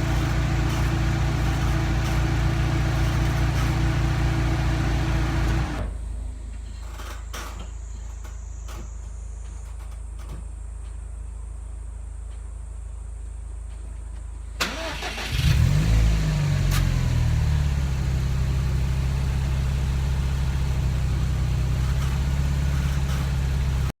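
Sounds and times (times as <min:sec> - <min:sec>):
car engine starting and idling: 0:00.0 - 0:07.2, 0:14.6 - 0:24.0.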